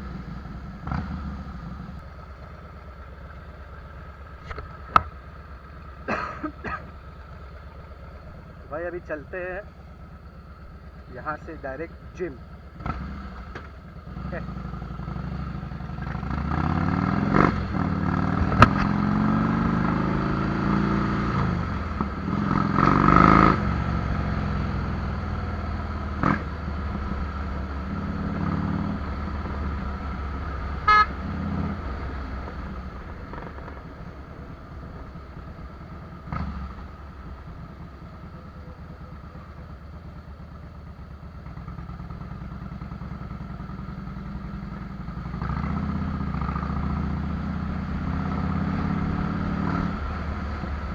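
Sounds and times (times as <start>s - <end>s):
motorcycle engine accelerating: 0.0s - 50.9s
short horn toot: 30.8s - 31.4s.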